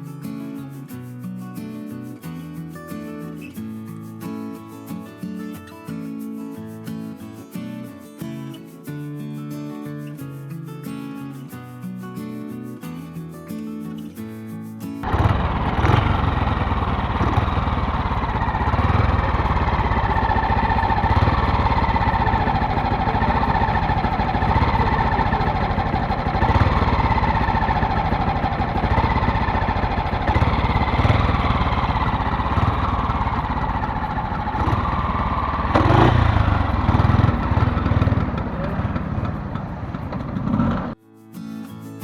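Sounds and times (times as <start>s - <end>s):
motorcycle engine idling and revving: 15.0s - 41.0s.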